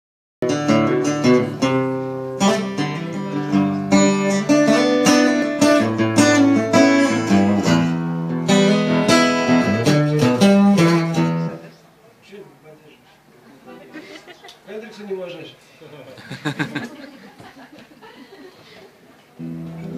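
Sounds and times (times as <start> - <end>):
acoustic guitar strumming chords: 0.4 - 11.7, 19.4 - 19.9.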